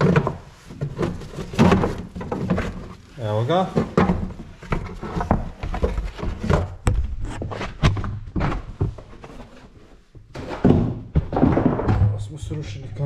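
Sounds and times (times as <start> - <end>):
plastic trim knocking and clattering: 0.0 - 2.9, 3.6 - 7.2, 10.2 - 12.3.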